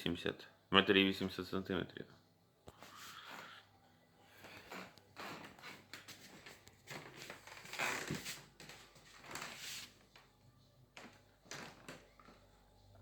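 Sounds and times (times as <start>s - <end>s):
rustling and scraping handling noise: 4.4s - 12.7s.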